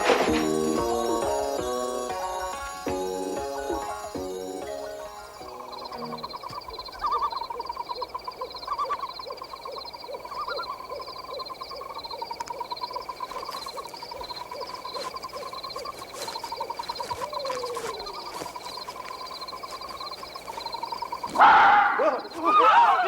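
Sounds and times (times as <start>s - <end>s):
trilling call: 0.0s - 15.6s
steady high chirping: 0.0s - 22.6s.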